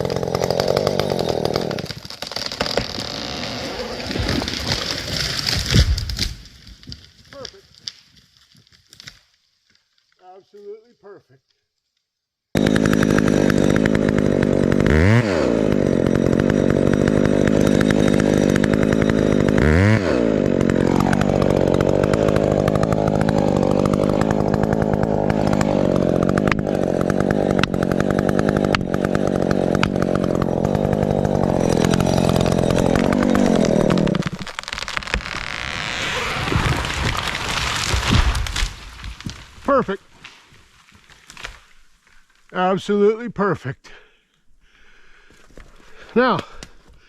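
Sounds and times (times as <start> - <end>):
chainsaw running: 0.0 - 5.5, 12.6 - 39.7
rustling crackling noise: 34.2 - 42.6.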